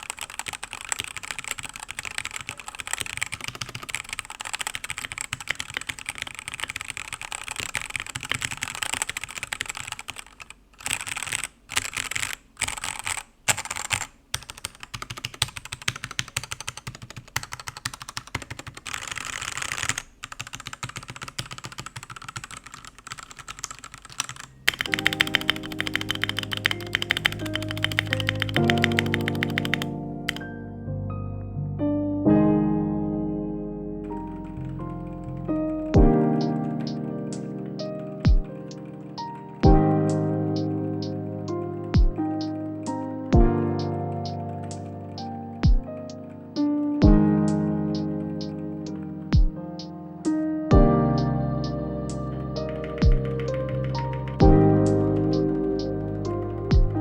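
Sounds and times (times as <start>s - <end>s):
mechanical keyboard typing: 0.0s - 30.5s, 34.1s - 57.0s
music: 24.7s - 57.0s.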